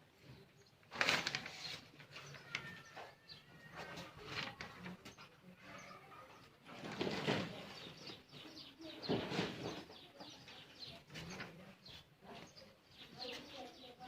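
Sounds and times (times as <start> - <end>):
rustling: 0.8 - 5.3, 6.6 - 8.3
bird chirping: 7.5 - 14.0.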